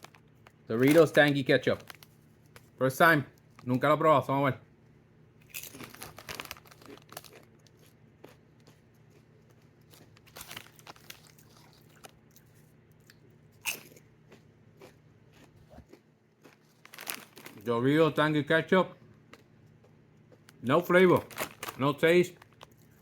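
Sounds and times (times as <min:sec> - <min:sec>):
person crunching chips: 0:00.0 - 0:02.8, 0:05.4 - 0:17.7, 0:21.0 - 0:23.0.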